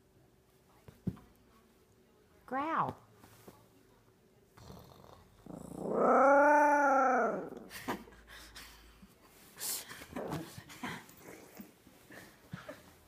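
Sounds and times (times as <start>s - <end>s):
dog whining howl: 5.7s - 7.6s.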